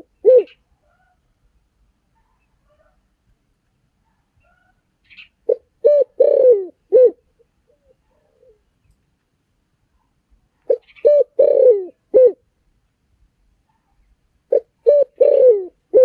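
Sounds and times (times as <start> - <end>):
dove cooing: 0.0 - 1.2, 5.5 - 8.6, 10.7 - 12.4, 14.5 - 16.0.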